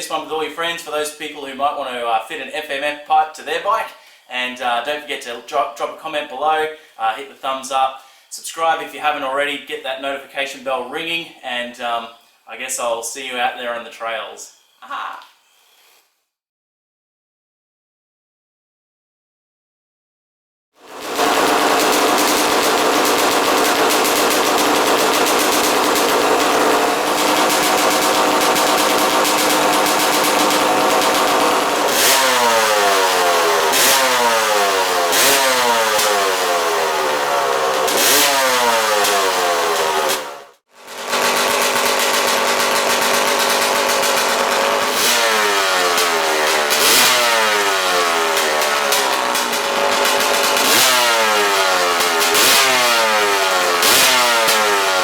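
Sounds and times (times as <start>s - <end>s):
dirt bike engine revving: 20.8s - 55.0s.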